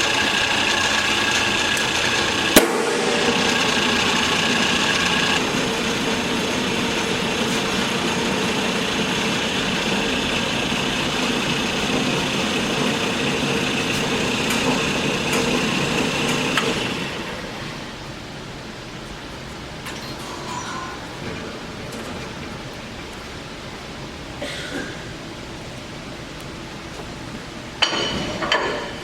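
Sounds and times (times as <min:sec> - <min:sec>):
band saw motor and blade whine: 0:00.0 - 0:17.6.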